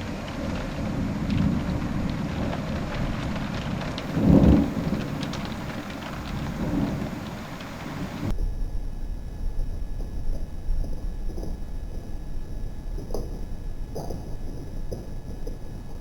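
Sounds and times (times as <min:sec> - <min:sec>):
heavy rain falling: 0:00.0 - 0:08.3
low clap of thunder: 0:00.0 - 0:12.1.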